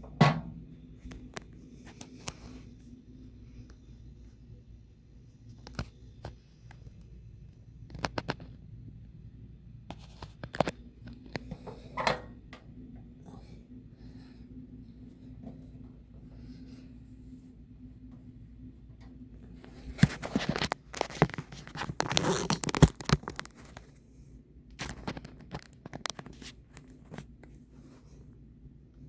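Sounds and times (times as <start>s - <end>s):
fan blades scraping and clicking: 5.4s - 8.7s, 9.9s - 24.0s, 24.7s - 28.2s.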